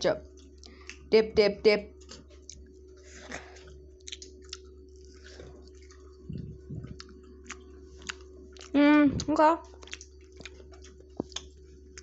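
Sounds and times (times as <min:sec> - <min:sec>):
steady low hum: 0:00.0 - 0:12.0
person chewing: 0:02.3 - 0:12.0
low bumps: 0:06.2 - 0:07.0.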